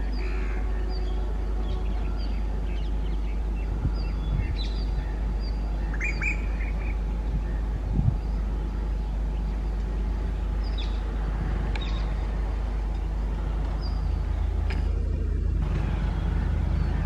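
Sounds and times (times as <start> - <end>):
birds chirping: 0.0 - 17.0
low rumble: 0.0 - 17.0.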